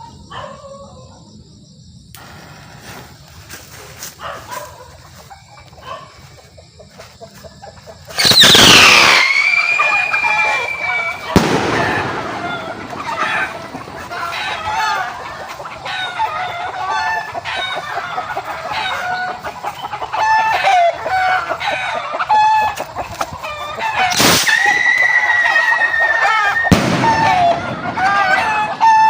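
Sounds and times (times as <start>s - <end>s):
chickens clucking: 3.1s - 8.2s, 9.7s - 29.0s
whistle rocket whistling: 8.1s - 13.8s, 24.1s - 27.8s
firework bang: 8.2s - 15.0s, 24.1s - 24.8s, 26.6s - 28.9s.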